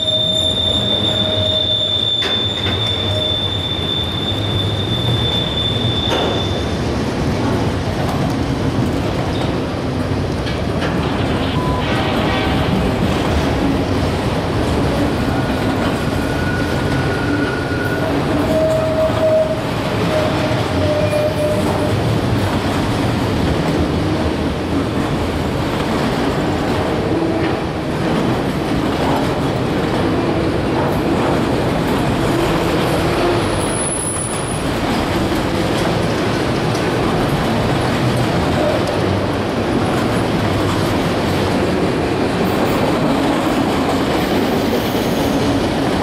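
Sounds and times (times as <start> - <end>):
wheels squealing: 0.0 - 6.8
freight train wheels rumbling: 0.0 - 46.0.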